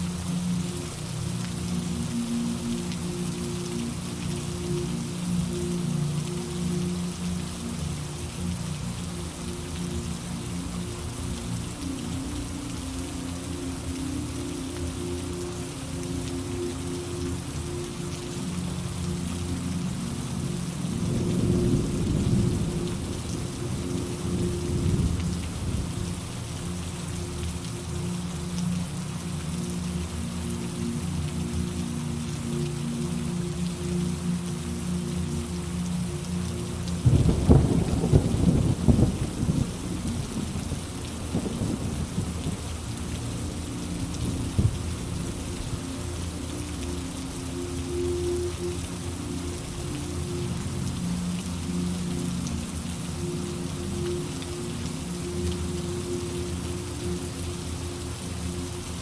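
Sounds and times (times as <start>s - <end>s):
steady rain falling: 0.0s - 59.0s
low rumble of thunder: 21.2s - 26.2s, 37.0s - 42.7s
rolling thunder: 37.0s - 40.6s.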